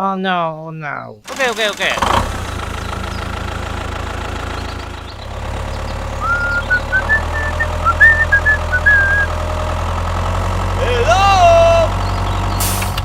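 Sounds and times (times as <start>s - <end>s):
small engine running: 1.3s - 13.0s
high whistling notes: 6.2s - 9.4s.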